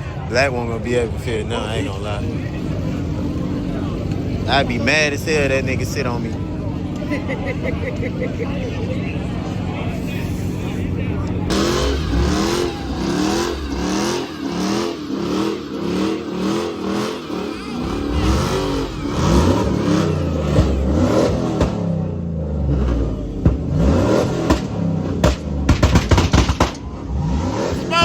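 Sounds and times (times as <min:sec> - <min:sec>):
car engine revving: 0:08.0 - 0:28.0
sharp cracks: 0:24.4 - 0:26.9.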